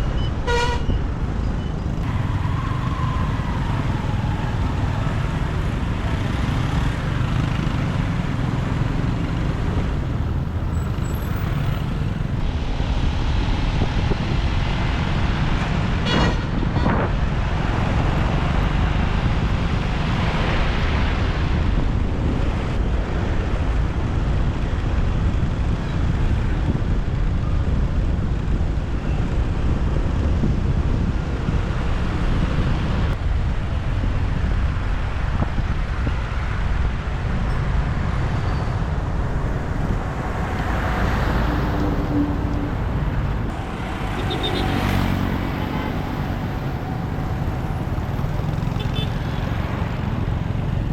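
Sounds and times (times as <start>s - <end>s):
motorbike engine and road noise: 0.0s - 50.9s
wind rumble on microphone: 0.0s - 50.9s
vehicle passing: 1.9s - 12.4s, 38.2s - 50.9s.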